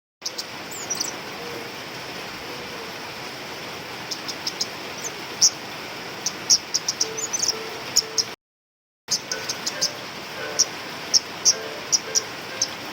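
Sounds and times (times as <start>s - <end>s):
bird chip calls: 0.2s - 1.8s, 4.0s - 5.6s, 6.2s - 8.4s, 9.1s - 12.9s
steady hiss: 0.3s - 8.3s, 9.1s - 12.9s.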